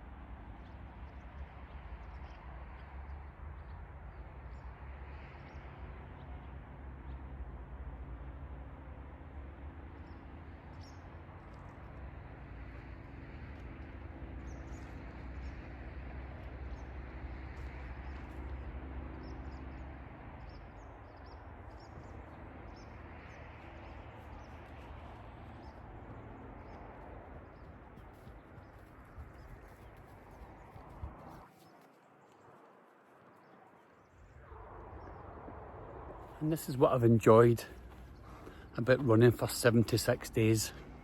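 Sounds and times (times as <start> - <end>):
low engine hum: 0.0 - 31.5, 34.2 - 41.0
rushing outdoor background: 0.1 - 41.0
small birds chirping: 12.8 - 32.5.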